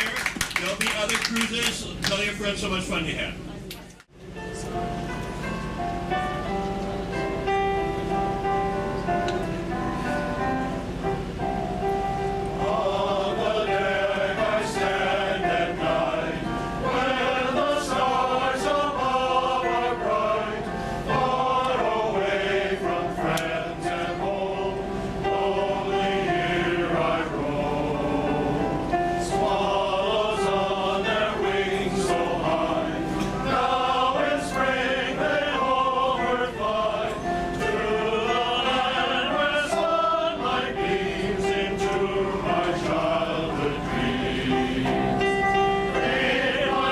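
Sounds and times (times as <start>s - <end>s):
male choir singing in harmony: 11.5s - 46.9s.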